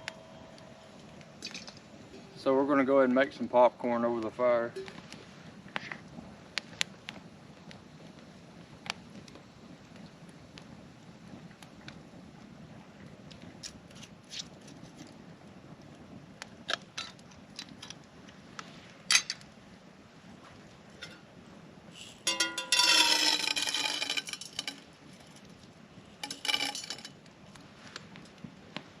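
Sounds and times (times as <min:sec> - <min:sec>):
metal cookware clinking: 0:21.0 - 0:21.2, 0:22.2 - 0:25.4, 0:26.2 - 0:27.2
ringing metallic rattle: 0:22.2 - 0:25.4, 0:26.2 - 0:27.2.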